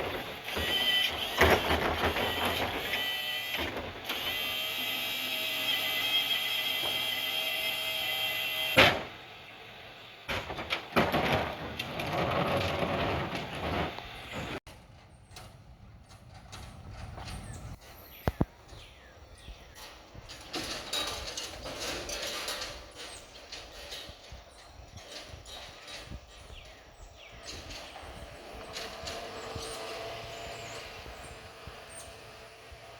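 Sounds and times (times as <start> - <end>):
knocks and clatter: 0.0 - 4.4, 10.3 - 18.4
truck motor whine: 0.0 - 18.4, 27.6 - 32.9.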